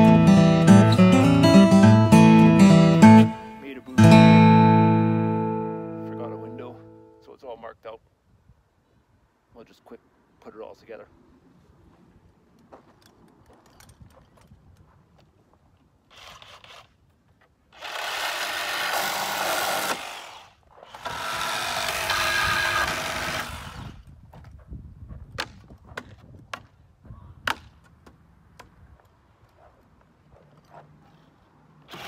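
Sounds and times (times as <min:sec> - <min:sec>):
cordless drill driving screws: 0:16.1 - 0:17.0, 0:17.7 - 0:24.0.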